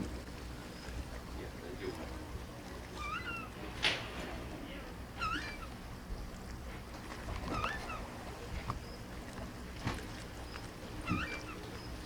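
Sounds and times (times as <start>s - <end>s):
seagull calling: 2.9s - 3.6s, 5.2s - 5.8s, 7.5s - 8.2s, 11.0s - 12.0s.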